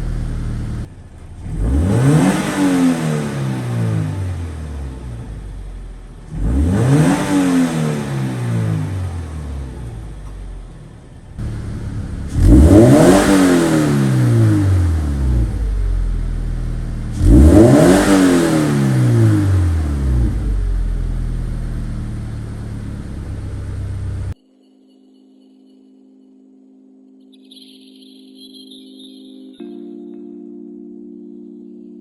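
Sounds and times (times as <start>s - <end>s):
car engine revving and idling: 0.0s - 24.4s.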